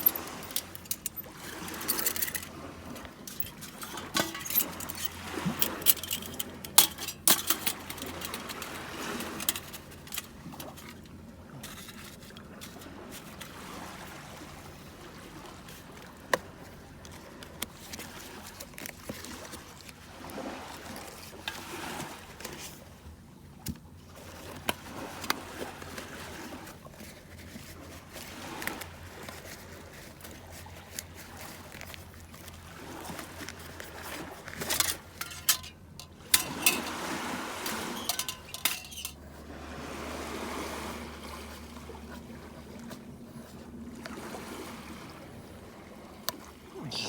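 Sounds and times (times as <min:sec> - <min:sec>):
metal gear clinking and knocking: 0:00.0 - 0:10.8, 0:34.6 - 0:37.0, 0:37.6 - 0:39.2.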